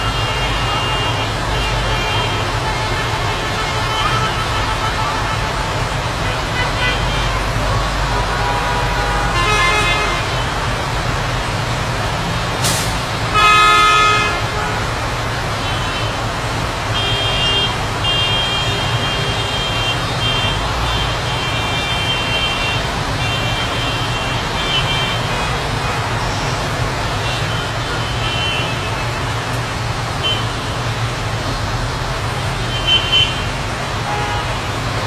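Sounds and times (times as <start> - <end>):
vehicle horn: 0.0 - 10.6, 13.3 - 14.9, 16.9 - 29.5, 32.7 - 34.6
road traffic noise: 0.0 - 35.0.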